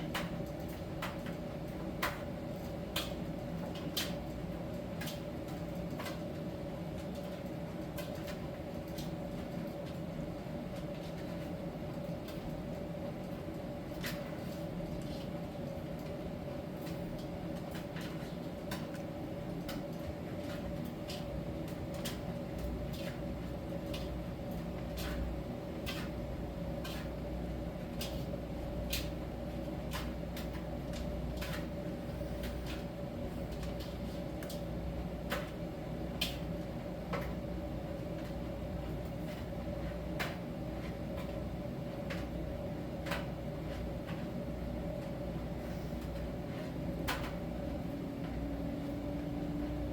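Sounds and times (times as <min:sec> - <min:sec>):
tumble dryer humming: 0:11.6 - 0:49.9.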